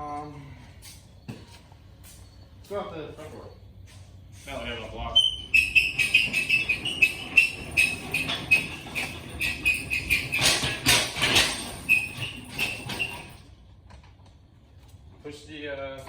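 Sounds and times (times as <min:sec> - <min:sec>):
door rollers squeaking: 0:04.7 - 0:13.6
door slats rattling: 0:05.6 - 0:13.4.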